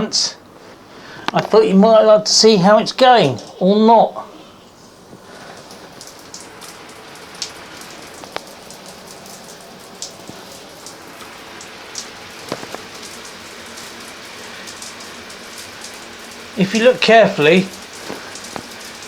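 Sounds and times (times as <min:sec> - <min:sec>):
water drips and splashes: 0:04.3 - 0:19.0
shower water spraying: 0:04.6 - 0:19.0.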